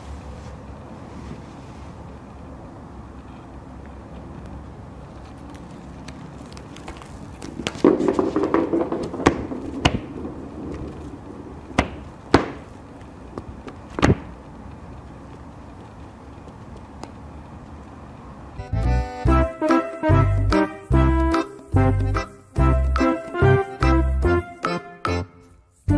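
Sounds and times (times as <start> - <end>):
ball toy rattling on mat: 6.4 - 12.6
sharp knocks of ball toy: 7.7 - 10.2, 11.8 - 12.7, 14.0 - 14.3.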